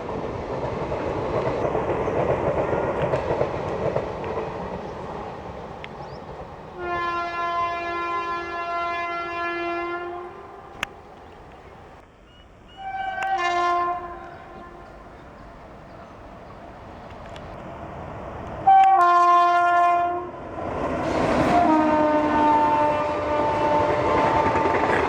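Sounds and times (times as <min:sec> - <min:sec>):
train rushing past: 0:00.0 - 0:25.0
locomotive horn: 0:06.8 - 0:10.9, 0:12.7 - 0:15.6, 0:18.6 - 0:20.4, 0:21.0 - 0:25.0.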